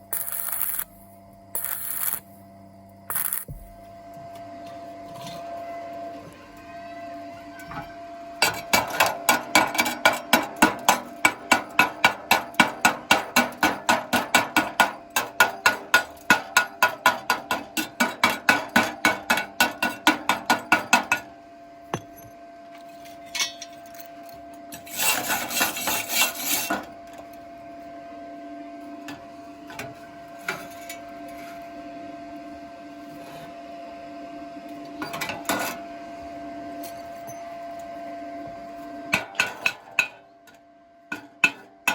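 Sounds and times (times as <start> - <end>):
faint steady hum: 0.0 - 8.4.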